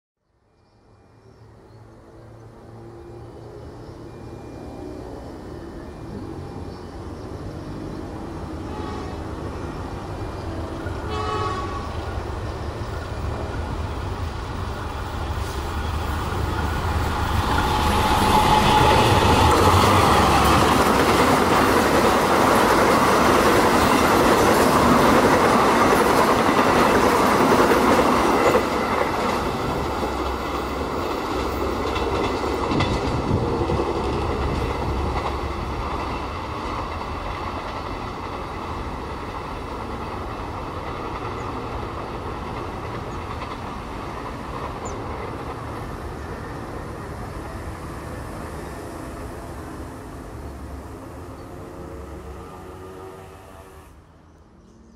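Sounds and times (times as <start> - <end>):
locomotive engine and wheels on rails: 0.3 - 54.9
train horn: 8.6 - 9.8, 10.9 - 12.3, 51.5 - 54.0.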